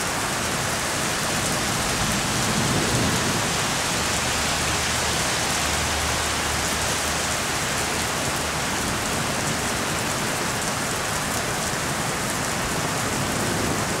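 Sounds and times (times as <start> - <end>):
steady rain: 0.0 - 14.0
thunder rumble: 1.7 - 4.8.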